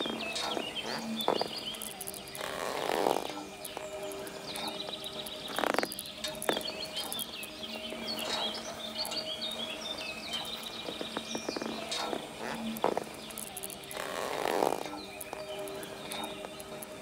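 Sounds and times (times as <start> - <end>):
songbirds twittering: 0.0 - 17.0.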